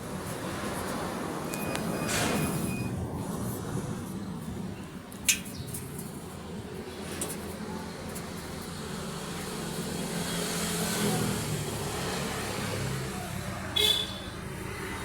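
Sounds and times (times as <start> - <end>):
vehicle engine passing by: 7.0 - 13.7, 14.4 - 15.0.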